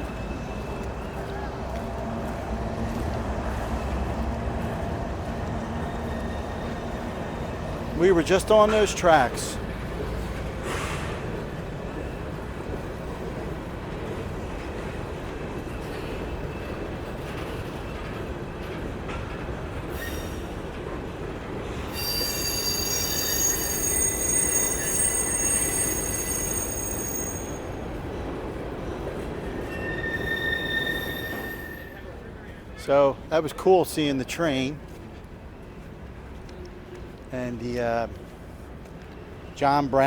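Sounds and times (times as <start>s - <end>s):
train wheels rumbling on rails: 0.0s - 40.0s
high-pitched wheel squeal: 21.9s - 27.8s, 29.6s - 32.1s.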